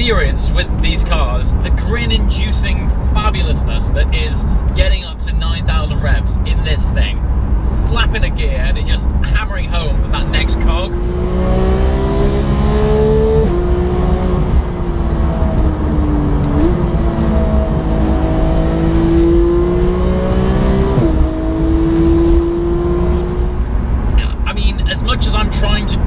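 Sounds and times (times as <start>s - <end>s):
car engine revving through gears: 9.9s - 24.3s.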